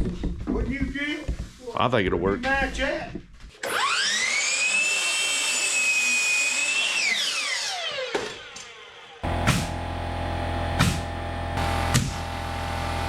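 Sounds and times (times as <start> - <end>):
power tool motor whining: 3.6 - 13.0.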